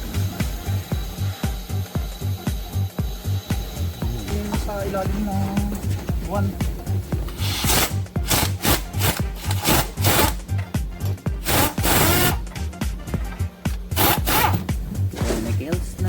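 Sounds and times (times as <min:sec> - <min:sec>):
background music with steady beat: 0:00.0 - 0:16.0
scraping strokes: 0:13.9 - 0:16.0.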